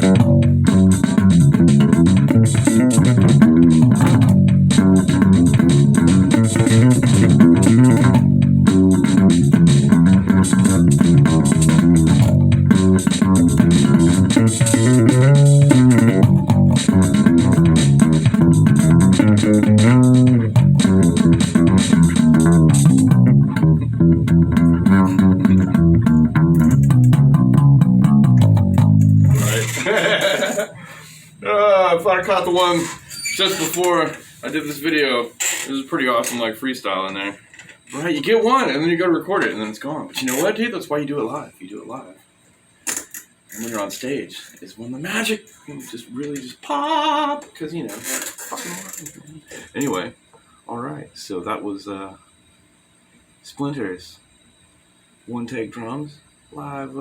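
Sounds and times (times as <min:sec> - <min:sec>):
bass guitar riff: 0:00.0 - 0:30.1
drums: 0:00.0 - 0:31.4.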